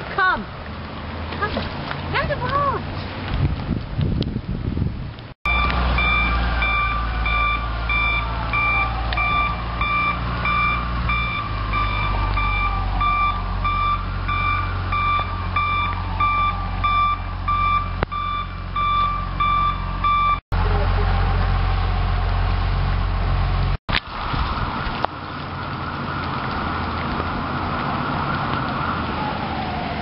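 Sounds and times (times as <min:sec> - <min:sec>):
reversing alarm beeping: 0:05.5 - 0:20.4
truck engine running: 0:05.5 - 0:23.8.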